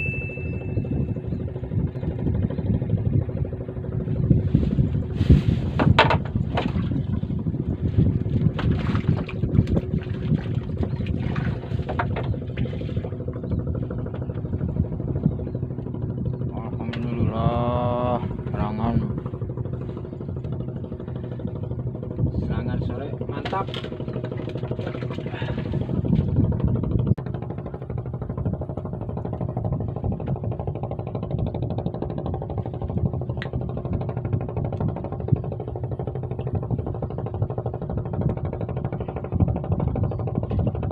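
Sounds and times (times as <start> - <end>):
water splashing and knocking: 5.8 - 7.3, 8.1 - 13.1.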